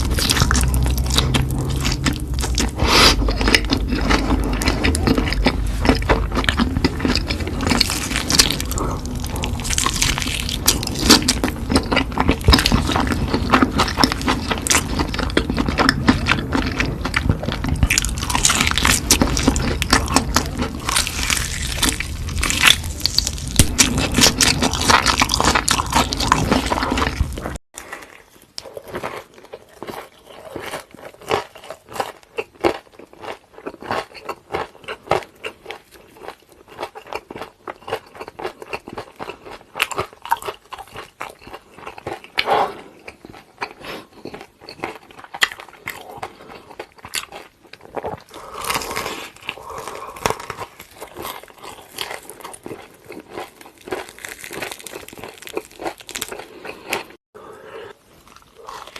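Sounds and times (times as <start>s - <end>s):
low background rumble: 0.0s - 27.6s
crunching and chewing fried food: 0.0s - 58.9s.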